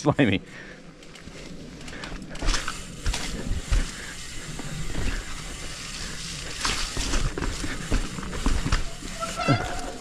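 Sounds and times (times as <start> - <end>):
bike tyre rumble on dirt: 0.6 - 10.0
bike knocks and thumps over bumps: 2.1 - 10.0.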